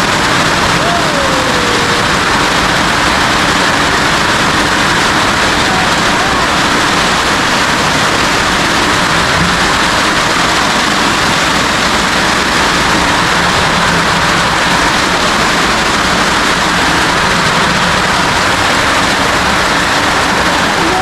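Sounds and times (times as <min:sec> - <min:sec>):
heavy rain on a roof: 0:00.0 - 0:21.0.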